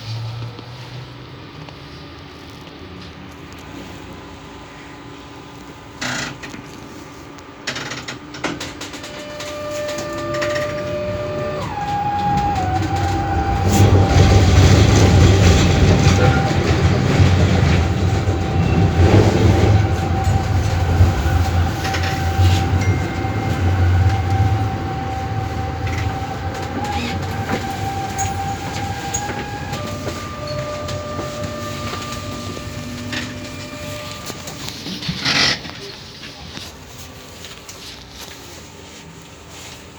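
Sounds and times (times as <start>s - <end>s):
tram wheels rumbling: 0.0s - 39.9s
steady electrical whine: 9.1s - 36.0s.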